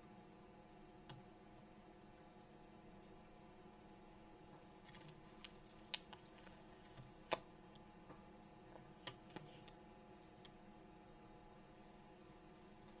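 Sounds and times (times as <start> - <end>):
faint steady background: 0.0 - 13.0.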